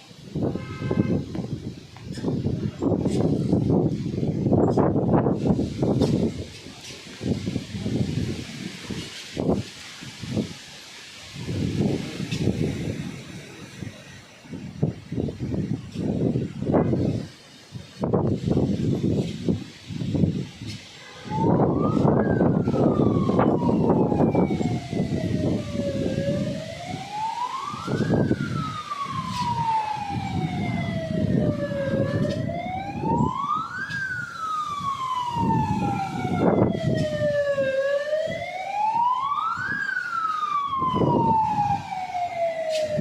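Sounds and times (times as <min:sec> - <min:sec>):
wind noise: 0:00.0 - 0:43.0
siren wailing: 0:18.0 - 0:43.0.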